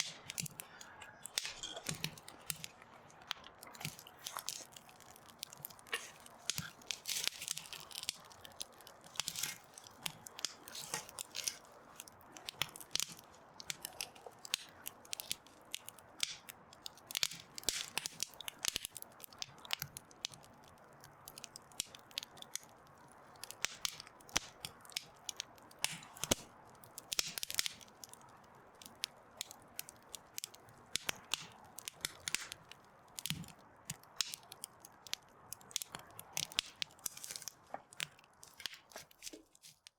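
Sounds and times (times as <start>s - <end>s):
fire hissing: 0.0s - 15.3s
campfire crackling: 0.0s - 39.9s.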